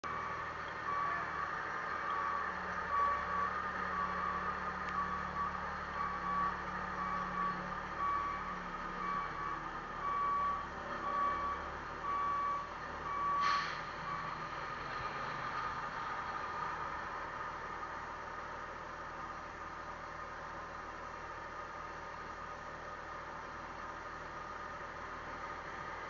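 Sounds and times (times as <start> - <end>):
electronic reversing beeps: 0.0 - 14.4
road and wind noise: 0.0 - 26.0.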